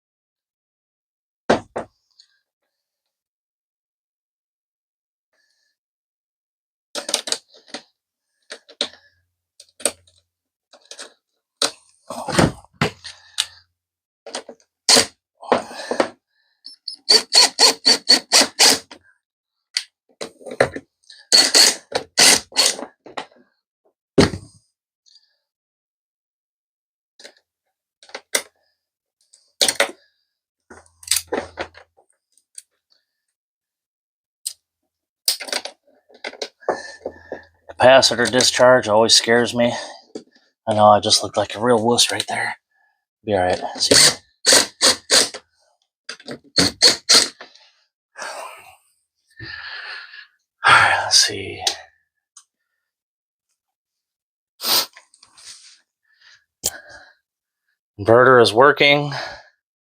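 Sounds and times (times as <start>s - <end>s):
clicks and knocks of cables handled: 7.0s - 7.9s, 9.6s - 13.6s, 14.3s - 14.7s, 28.0s - 28.6s, 29.2s - 30.0s, 30.7s - 32.8s, 35.3s - 38.6s, 46.1s - 46.6s
tools and hardware clicking and rattling: 35.3s - 36.5s.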